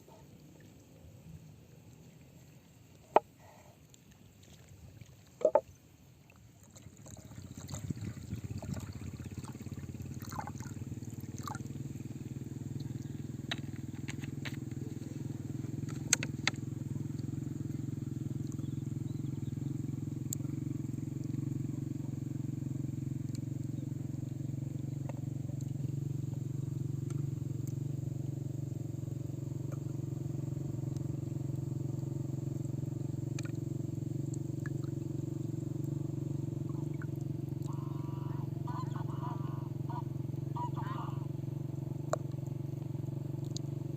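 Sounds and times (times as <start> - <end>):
campfire burning with low rumble: 6.6 - 38.7, 41.2 - 43.9.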